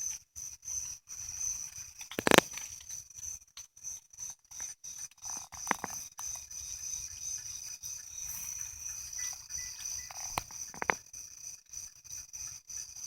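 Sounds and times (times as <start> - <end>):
insects chorus: 0.0 - 13.0
brief clicks or rustles: 2.0 - 3.0.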